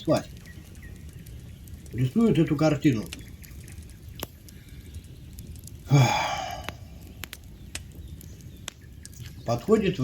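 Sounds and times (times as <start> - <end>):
campfire crackling: 0.0 - 10.0
person sighing loudly: 5.9 - 6.8.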